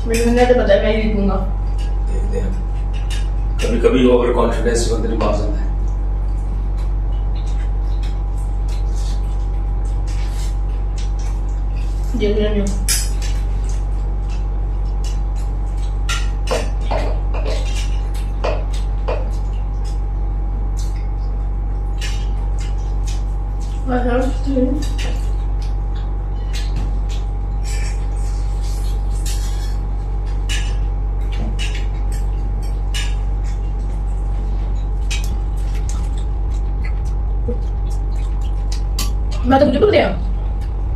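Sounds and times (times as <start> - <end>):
steady low hum: 0.0 - 40.9
dishes clinking and scraping: 1.7 - 3.9, 12.8 - 20.0, 22.0 - 39.4
plates and cutlery clinking: 26.4 - 36.2.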